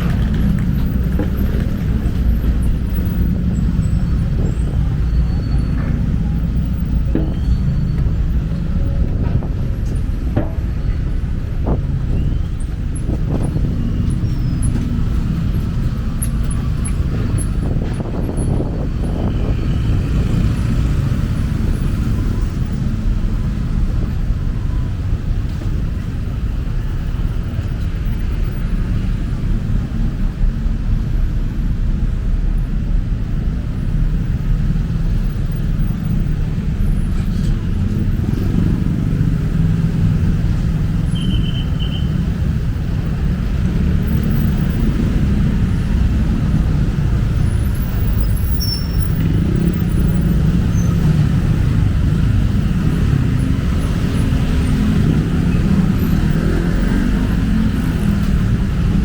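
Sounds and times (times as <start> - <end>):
road traffic rumble: 0.0 - 59.0
vehicles passing: 0.0 - 59.0.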